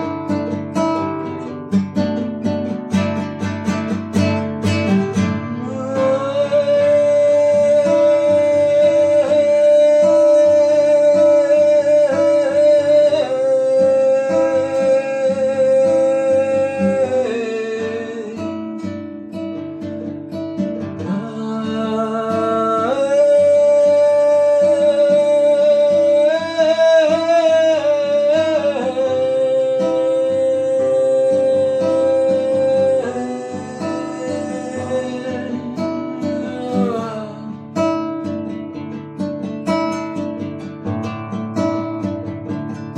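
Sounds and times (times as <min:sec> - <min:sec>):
acoustic guitar: 0:00.0 - 0:42.9
person singing wordless notes: 0:05.4 - 0:18.5, 0:21.0 - 0:37.6.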